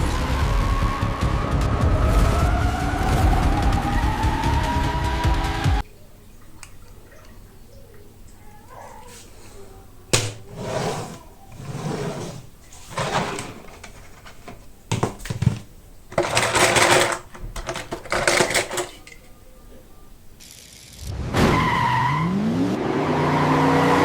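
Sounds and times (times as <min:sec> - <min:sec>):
packaging crinkling and clattering: 0:11.1 - 0:19.4
plastic clicks: 0:12.9 - 0:19.4.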